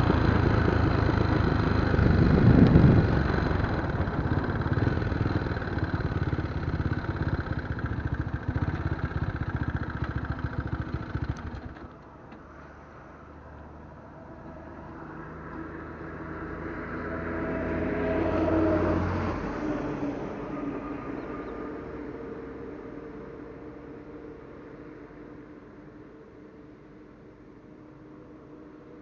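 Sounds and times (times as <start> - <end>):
wind buffeting: 0.0 - 9.6
motorcycle engine running: 0.0 - 12.3
steady engine hum: 0.0 - 29.0.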